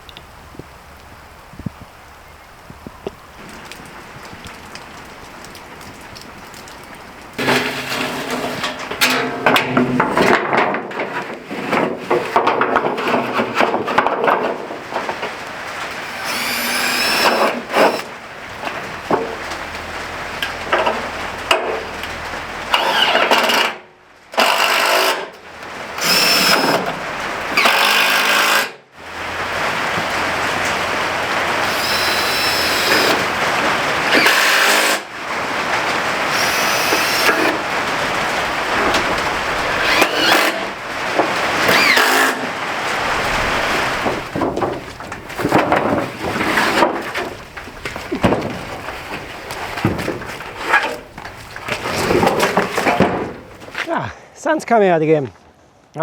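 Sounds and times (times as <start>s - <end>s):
steady rain: 0.0s - 10.3s, 14.4s - 23.0s, 23.9s - 28.3s, 28.9s - 54.1s
scraping: 3.4s - 23.5s, 29.4s - 54.0s
power tool running: 16.0s - 18.1s, 24.4s - 25.3s, 26.0s - 26.9s, 27.5s - 28.8s, 31.6s - 33.4s, 34.1s - 35.1s, 36.3s - 37.6s, 39.7s - 40.7s, 41.6s - 42.5s.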